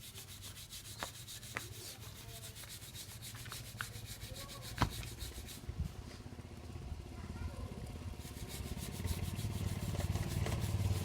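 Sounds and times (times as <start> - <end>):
brush scrubbing engine parts: 0.0 - 5.7, 8.2 - 11.0.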